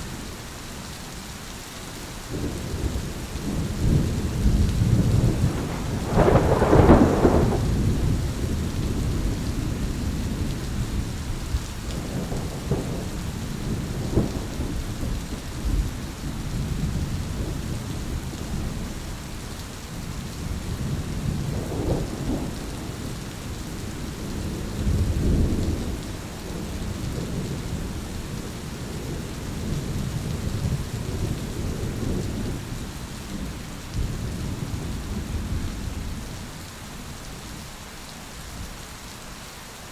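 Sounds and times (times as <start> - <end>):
steady rain: 0.0 - 39.9
rolling thunder: 2.3 - 19.0, 20.3 - 32.7
loud thunder crack: 3.5 - 9.4.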